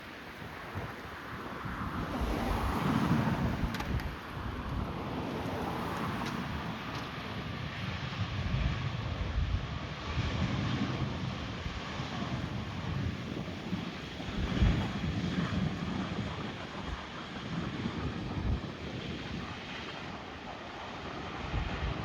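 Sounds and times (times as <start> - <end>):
jet engine noise: 0.0 - 22.0
wind buffeting microphone: 0.0 - 22.0.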